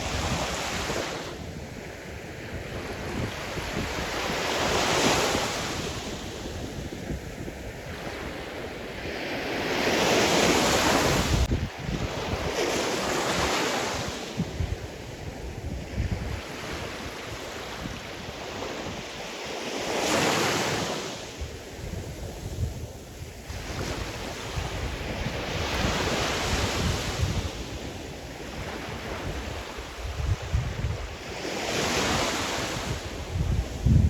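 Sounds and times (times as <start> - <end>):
wind buffeting microphone: 0.0 - 19.2, 21.4 - 34.0.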